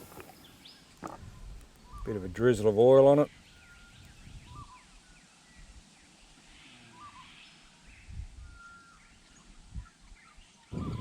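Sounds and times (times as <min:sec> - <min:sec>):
birds chirping and whistling: 0:03.3 - 0:05.7, 0:07.0 - 0:11.0.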